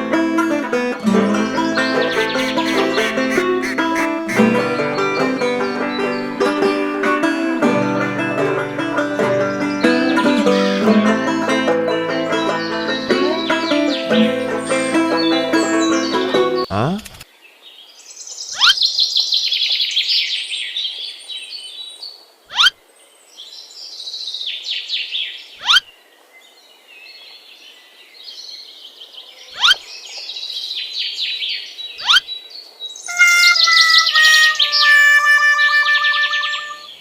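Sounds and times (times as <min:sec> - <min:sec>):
birds chirping and calling: 0:01.4 - 0:04.7, 0:06.1 - 0:08.3, 0:10.3 - 0:11.0.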